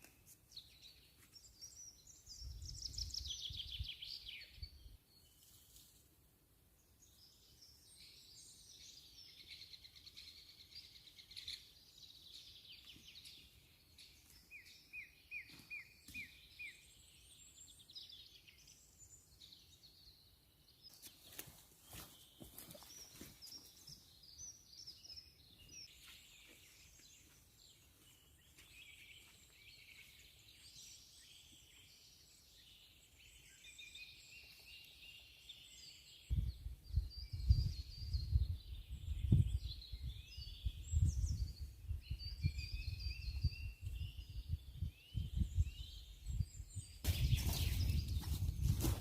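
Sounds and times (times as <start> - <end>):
songbirds chirping and trilling: 0.0 - 49.0.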